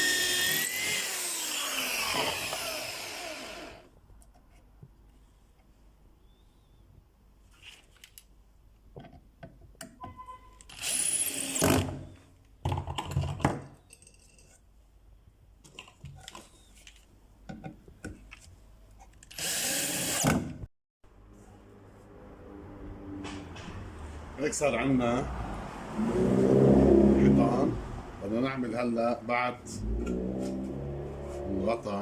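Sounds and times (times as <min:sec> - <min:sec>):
power drill driving screws into wood: 0:00.0 - 0:03.9, 0:10.7 - 0:12.0, 0:19.3 - 0:20.5.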